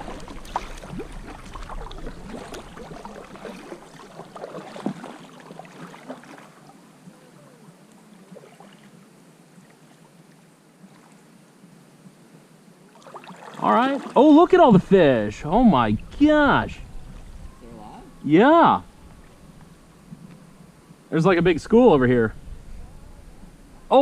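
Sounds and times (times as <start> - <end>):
paddle knocking against hull: 0.0 - 6.1
paddle splashing in water: 0.0 - 7.5, 8.2 - 11.2, 12.9 - 14.4.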